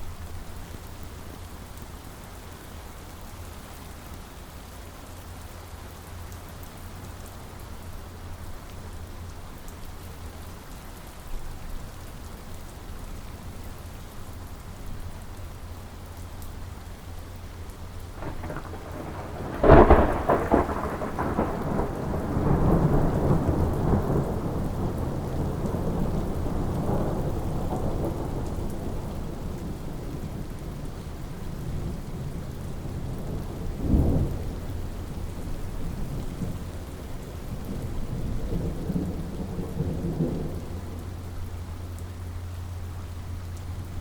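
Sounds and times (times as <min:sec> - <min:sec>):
steady rain: 0:00.0 - 0:44.0
thunder: 0:18.2 - 0:30.9, 0:31.6 - 0:36.8, 0:37.4 - 0:41.4.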